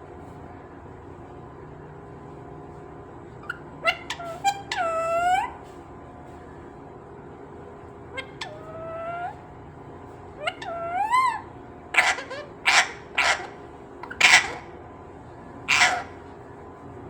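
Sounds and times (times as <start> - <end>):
parrot screeching: 3.4 - 5.6, 8.1 - 9.5, 10.4 - 14.7, 15.7 - 16.2
parrot whistled calls: 3.4 - 5.7, 8.1 - 9.5, 10.4 - 14.7, 15.7 - 16.2.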